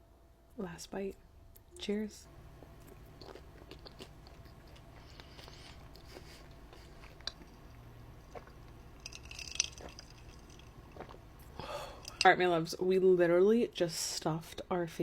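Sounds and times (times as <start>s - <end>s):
low steady hum: 0.0s - 15.0s
person chewing: 2.6s - 12.3s.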